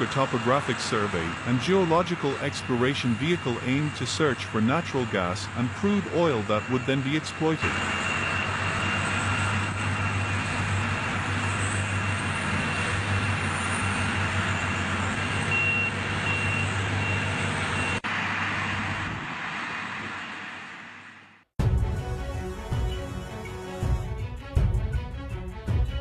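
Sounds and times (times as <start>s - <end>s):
music: 21.6s - 26.0s.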